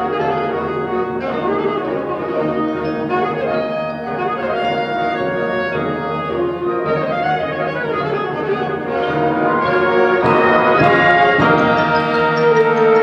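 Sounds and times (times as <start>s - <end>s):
symphonic band playing: 0.0s - 13.0s
percussion strikes: 8.9s - 13.0s.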